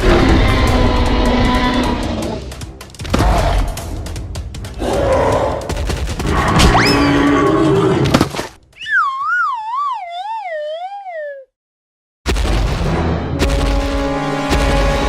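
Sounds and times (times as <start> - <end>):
cartoon background music: 0.0 - 11.5
cartoon sound effects: 8.8 - 11.5
comic descending wavering tone: 8.8 - 11.5.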